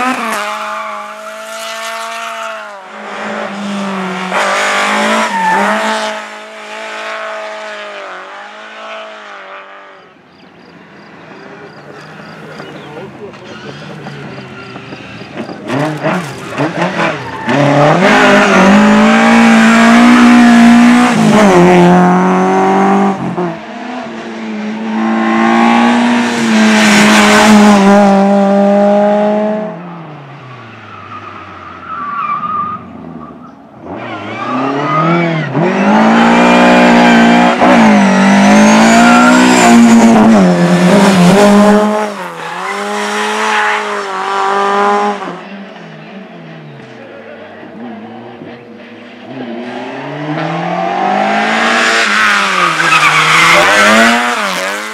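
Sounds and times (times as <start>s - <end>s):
rally cars engines revving: 0.0s - 54.9s
tyre squeal: 11.7s - 18.9s, 52.1s - 53.8s.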